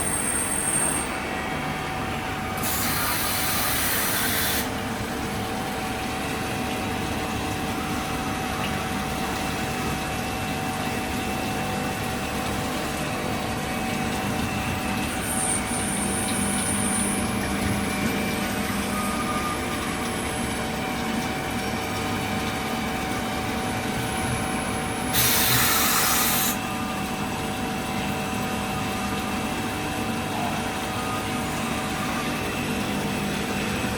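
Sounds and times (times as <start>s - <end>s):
loud hissing bursts: 25.1s - 26.6s.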